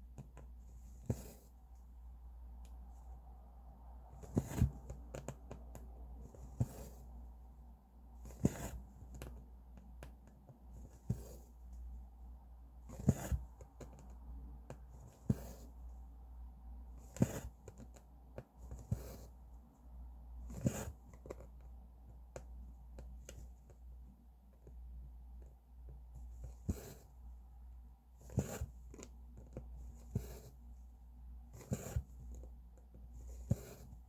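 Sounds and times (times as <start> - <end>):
low steady hum: 0.0 - 34.0
needle and thread through fabric: 4.1 - 7.5, 8.2 - 12.1, 12.8 - 16.0, 16.9 - 24.8, 28.1 - 34.0.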